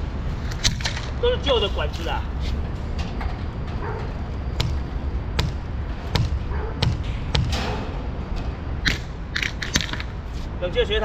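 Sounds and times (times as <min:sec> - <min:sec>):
steady low hum: 0:00.0 - 0:11.0
sharp knocks: 0:04.0 - 0:10.1.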